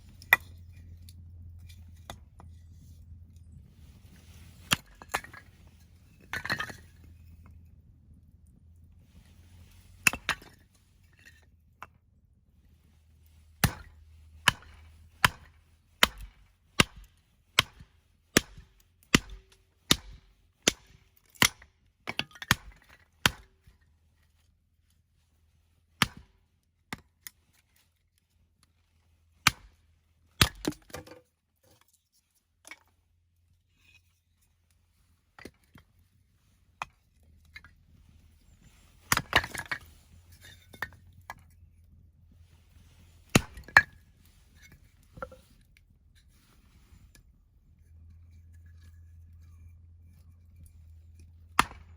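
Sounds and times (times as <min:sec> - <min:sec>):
axe chopping firewood: 0:04.6 - 0:05.5, 0:06.3 - 0:06.8, 0:13.6 - 0:23.6, 0:26.0 - 0:26.4, 0:29.4 - 0:29.8, 0:30.4 - 0:31.2, 0:38.9 - 0:41.0, 0:43.3 - 0:44.0, 0:51.5 - 0:51.9
split wood pieces knocking: 0:39.1 - 0:39.9, 0:43.3 - 0:43.9, 0:51.6 - 0:51.9.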